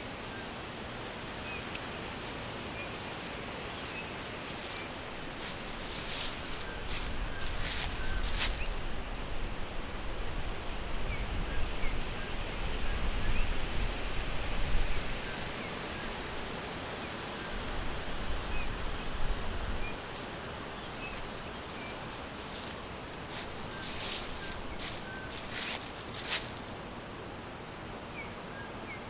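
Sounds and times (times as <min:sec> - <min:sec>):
songbird chirps: 0:00.0 - 0:09.2, 0:18.3 - 0:27.2
wind through foliage: 0:00.0 - 0:29.0
sharp rustles or crackles: 0:01.4 - 0:09.0, 0:19.4 - 0:27.1.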